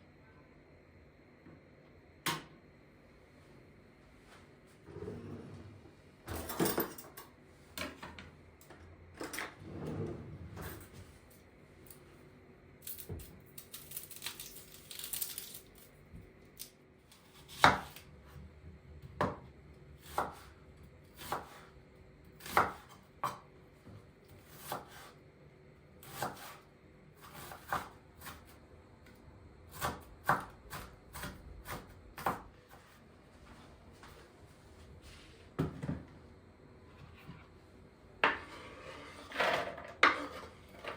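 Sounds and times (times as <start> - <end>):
knife chopping on cutting board: 17.4 - 18.0, 20.0 - 20.5, 21.2 - 21.7, 22.4 - 23.4, 27.2 - 28.4, 29.7 - 32.8.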